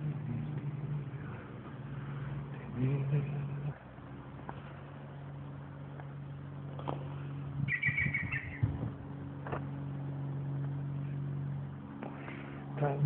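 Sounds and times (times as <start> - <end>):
steady low hum: 0.0 - 13.0
bird chirping: 7.6 - 8.7.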